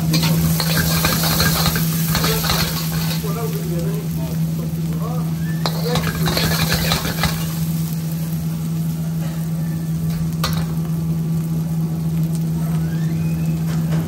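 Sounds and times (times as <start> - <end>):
steady low hum: 0.0 - 12.6
onions sizzling in hot oil: 0.0 - 14.0
metal spoon scraping wok: 0.1 - 3.3, 5.6 - 7.6.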